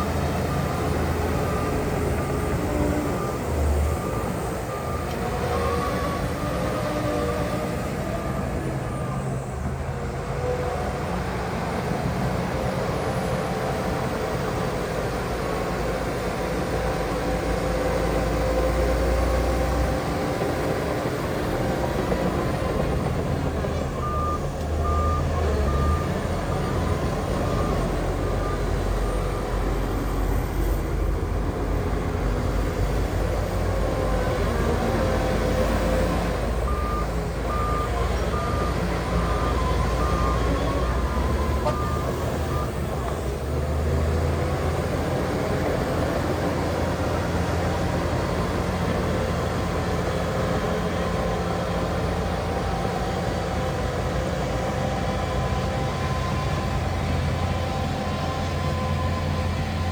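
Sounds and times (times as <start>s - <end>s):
heavy diesel engines running: 0.0s - 59.9s
reversing alarm beeps: 0.1s - 7.1s, 24.0s - 30.4s, 36.6s - 43.2s.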